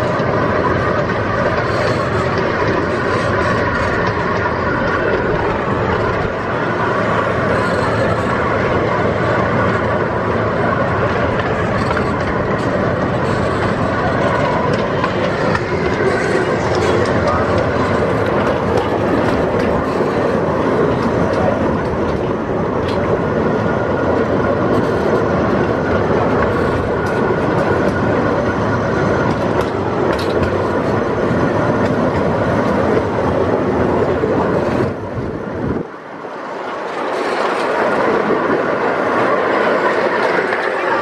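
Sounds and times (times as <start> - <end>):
miniature train rolling on track: 0.0 - 41.0.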